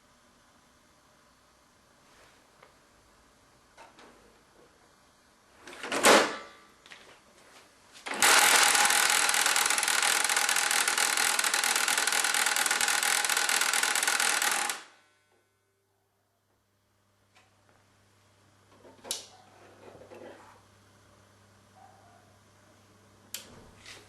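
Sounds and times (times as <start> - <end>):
printer rattling grind: 8.0 - 14.9.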